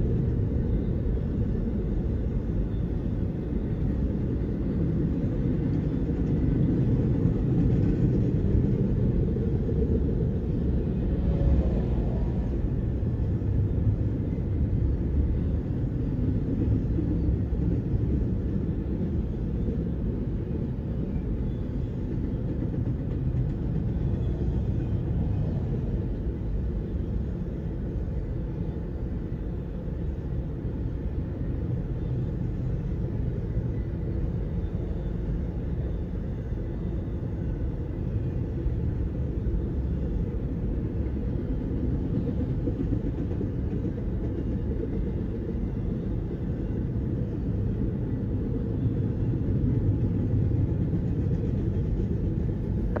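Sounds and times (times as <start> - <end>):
freight train wheels rumbling on rails: 0.0 - 53.0.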